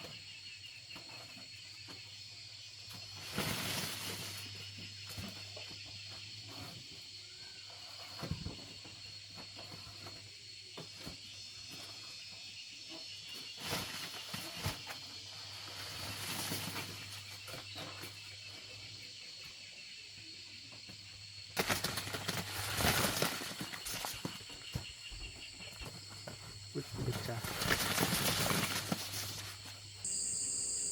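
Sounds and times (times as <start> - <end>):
insect chirring: 21.2 - 30.9.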